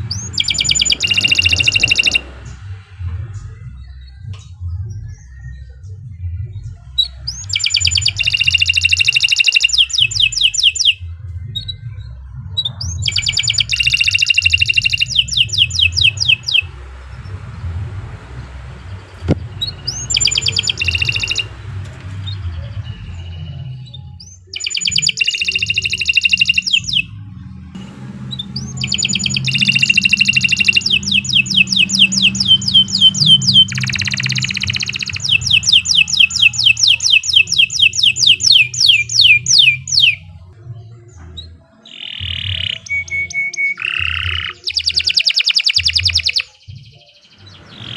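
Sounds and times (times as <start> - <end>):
canary singing rapid trills: 0.0 - 5.9, 6.5 - 47.9
steady low hum: 0.0 - 8.7, 11.0 - 24.6, 26.4 - 39.1.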